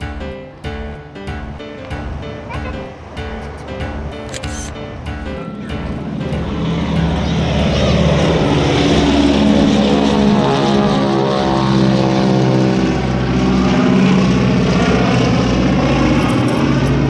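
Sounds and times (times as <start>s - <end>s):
propeller airplane flying past: 0.0s - 17.0s.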